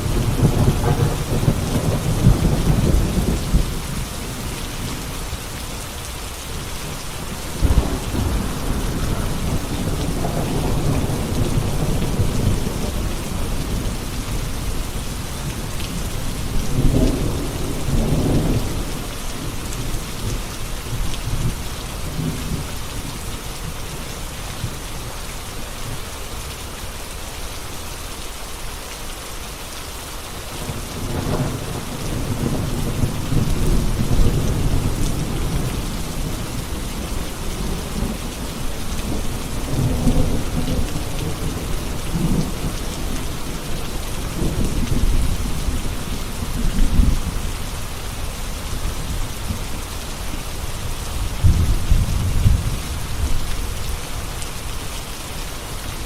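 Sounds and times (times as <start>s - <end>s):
low thunder rumbling: 0.0s - 5.1s, 6.4s - 22.8s, 30.6s - 50.0s, 51.1s - 53.9s
steady rain falling: 0.0s - 56.0s.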